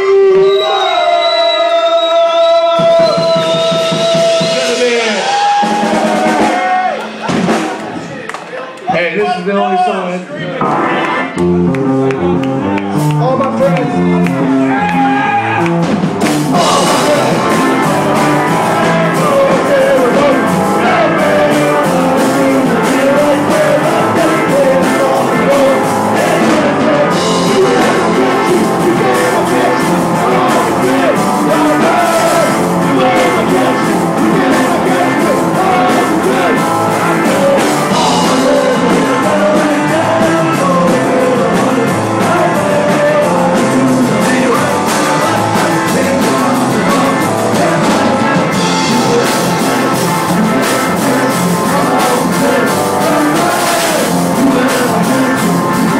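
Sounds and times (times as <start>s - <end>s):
person singing: 2.6s - 7.6s, 16.5s - 55.9s
live rock band playing: 2.7s - 8.1s, 10.5s - 55.9s.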